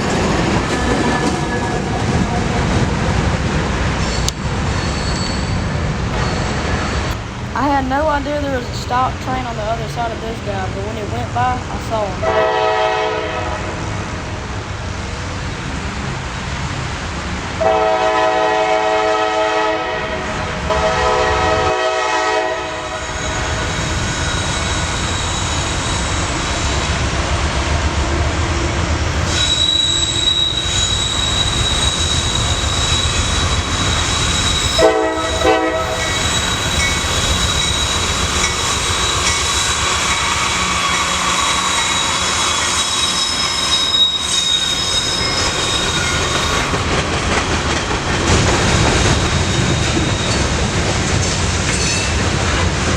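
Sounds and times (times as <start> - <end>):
train rolling on rails: 0.0 - 52.9
high wheel squeal: 4.0 - 7.3, 22.5 - 26.8, 29.0 - 50.7
locomotive horn blasts: 12.2 - 13.8, 17.6 - 23.2, 33.5 - 37.0.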